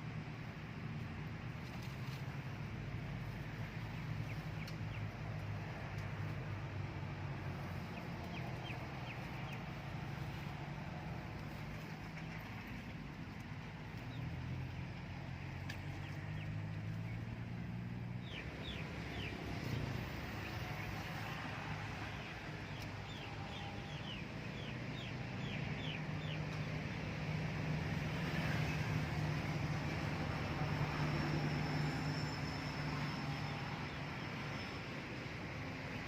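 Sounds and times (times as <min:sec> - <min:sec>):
low engine hum: 0:00.0 - 0:36.0.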